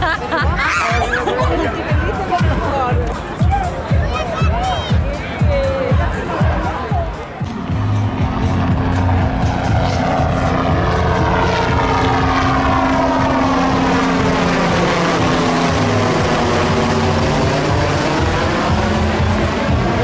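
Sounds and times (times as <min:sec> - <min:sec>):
propeller aircraft flying past: 0:07.4 - 0:20.0.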